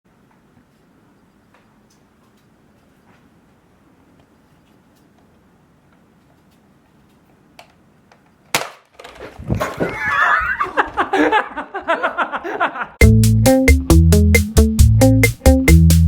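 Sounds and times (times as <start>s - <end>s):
people laughing and shrieking: 9.6s - 12.9s.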